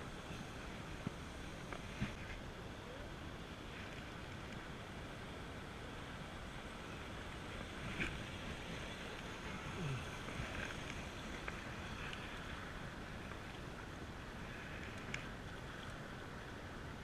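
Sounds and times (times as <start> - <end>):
river water rushing: 0.0 - 17.0
faint clicks: 14.7 - 16.0.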